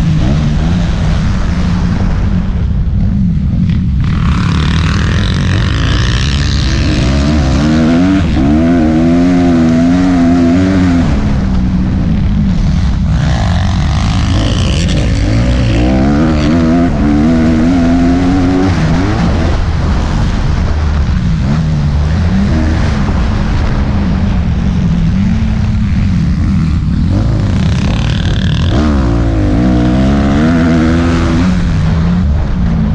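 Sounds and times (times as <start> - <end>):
motocross bike engine revving: 3.5 - 32.6.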